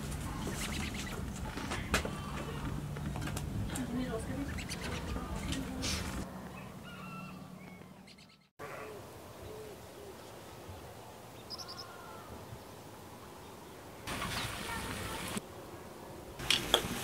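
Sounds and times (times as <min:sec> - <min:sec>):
bird calls: 0:00.1 - 0:02.9, 0:04.1 - 0:12.7, 0:13.4 - 0:15.4
pot of water boiling hard: 0:16.4 - 0:17.0.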